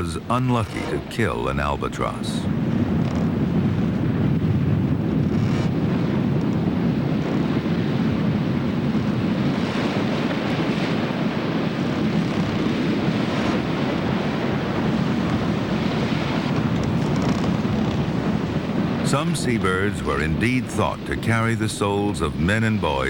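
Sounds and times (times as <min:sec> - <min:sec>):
rushing sea waves: 0:00.0 - 0:23.0
wind: 0:00.0 - 0:23.0.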